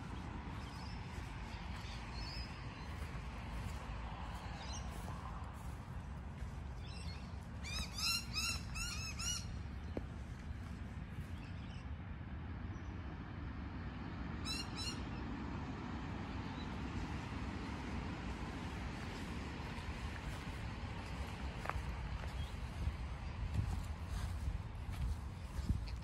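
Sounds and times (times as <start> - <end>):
bird calling: 6.9 - 9.6.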